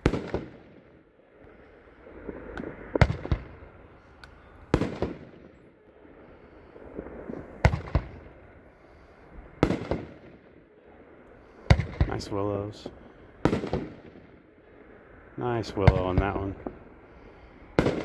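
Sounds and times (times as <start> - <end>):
firework bangs with rumbling echo: 0.0 - 1.1, 2.0 - 4.0, 4.7 - 5.8, 6.7 - 8.7, 9.4 - 10.7, 11.6 - 14.7, 15.6 - 16.9, 17.7 - 18.0.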